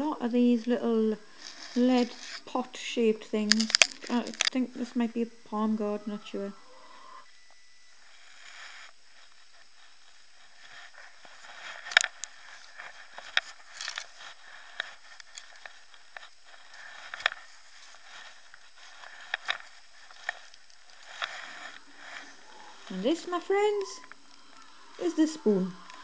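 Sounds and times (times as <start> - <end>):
handling rustling and clicks: 1.3 - 2.5, 3.4 - 4.7, 8.7 - 26.0.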